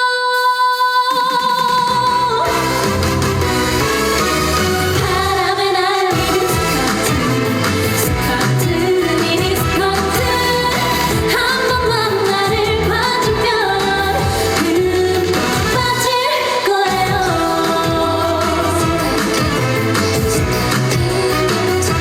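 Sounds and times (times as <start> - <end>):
woman singing: 0.0 - 2.8, 4.9 - 22.0
loud band backing track: 1.2 - 22.0.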